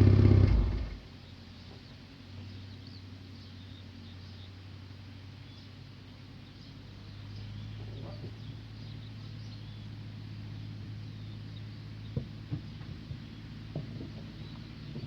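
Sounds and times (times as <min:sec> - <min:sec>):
car engine idling: 0:00.0 - 0:01.2.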